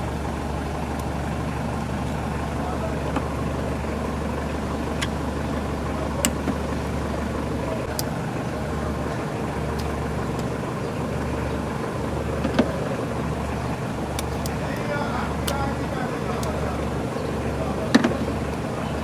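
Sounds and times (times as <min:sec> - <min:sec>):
car engine idling: 0:00.0 - 0:19.0
sharp clicks: 0:14.1 - 0:16.6.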